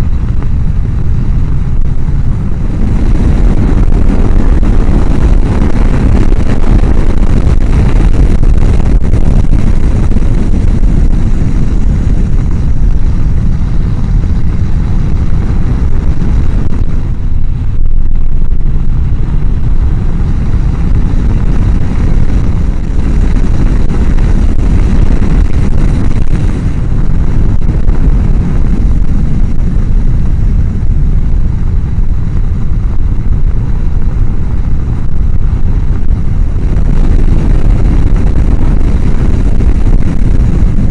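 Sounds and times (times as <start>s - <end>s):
motorcycle running: 0.0s - 40.9s
road noise: 0.0s - 40.9s
wind roar on microphone: 0.0s - 40.9s.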